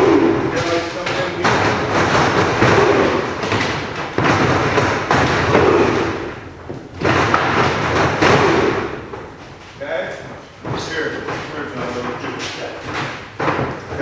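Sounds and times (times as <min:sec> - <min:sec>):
bodies slamming onto wrestling ring: 0:00.0 - 0:09.2.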